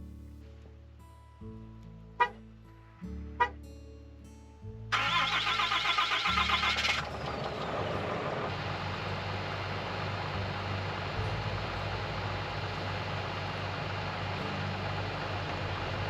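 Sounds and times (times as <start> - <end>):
guitar music: 0.0 - 16.0
truck engine cranking and running: 4.9 - 16.0.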